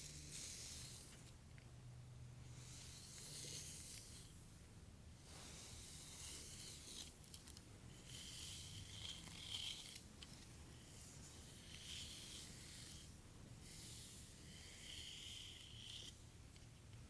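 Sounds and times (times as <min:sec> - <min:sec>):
hair being brushed: 0:05.2 - 0:07.3, 0:07.9 - 0:16.3.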